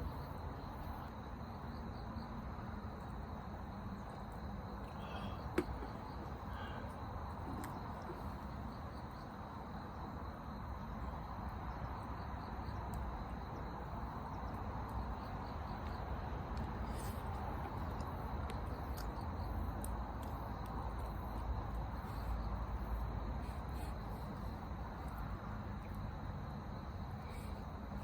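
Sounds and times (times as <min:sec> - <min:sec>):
campfire crackling: 0:12.7 - 0:23.0.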